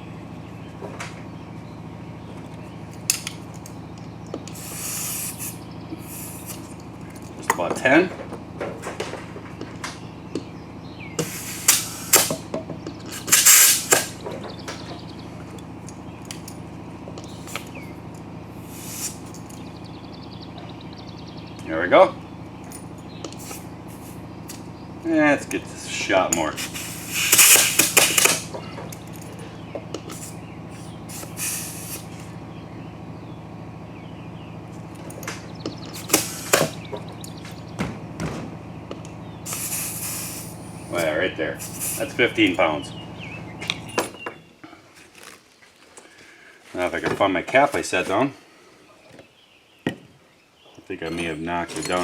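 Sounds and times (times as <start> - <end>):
steady low hum: 0.0 - 45.0
compressed air hissing: 4.4 - 6.8, 11.2 - 12.4, 13.0 - 14.2, 18.6 - 19.6, 23.3 - 24.2, 26.5 - 28.6, 30.0 - 32.3, 35.8 - 36.9, 39.4 - 42.3
air chuck clicks: 13.0 - 14.2, 26.3 - 29.0.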